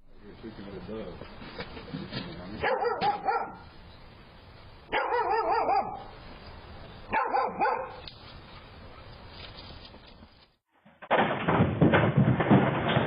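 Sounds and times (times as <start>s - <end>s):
dog barking: 2.6s - 3.7s, 4.9s - 6.1s, 7.1s - 8.0s.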